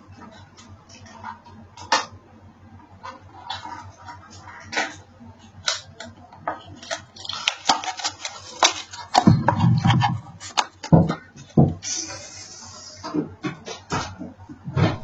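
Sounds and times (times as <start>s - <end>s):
package rustling: 6.7s - 10.9s.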